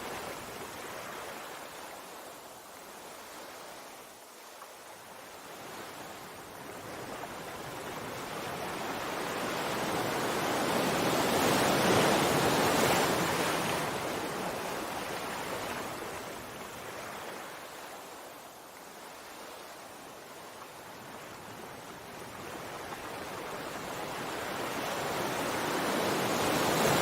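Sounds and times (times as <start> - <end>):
sea waves breaking: 7.0 - 18.3, 22.2 - 27.0.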